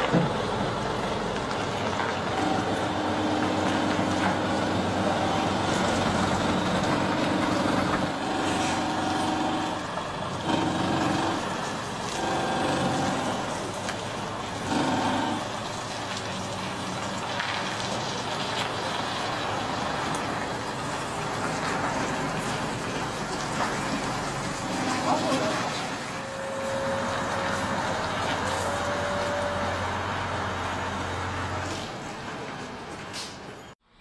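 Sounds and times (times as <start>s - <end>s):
heavy truck engine running: 0.0s - 33.8s
road noise: 0.0s - 34.0s.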